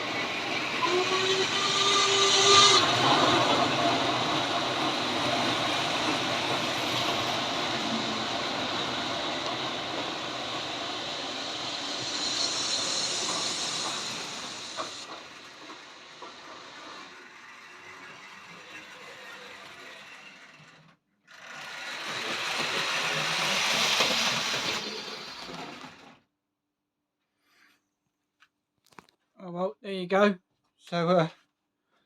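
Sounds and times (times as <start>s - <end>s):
two-note steam whistle: 0.0s - 15.2s
steam hiss burst: 0.0s - 20.2s, 21.8s - 26.1s
steam locomotive running: 0.0s - 26.2s.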